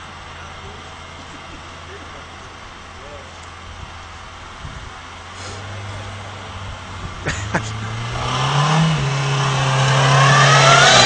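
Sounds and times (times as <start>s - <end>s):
car engine revving: 0.0s - 11.0s
rising hiss: 4.6s - 6.6s.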